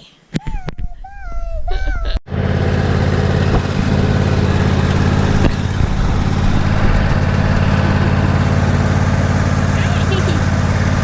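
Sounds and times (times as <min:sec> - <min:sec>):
child's voice: 0:00.0 - 0:02.2
engine running steadily: 0:02.3 - 0:11.0.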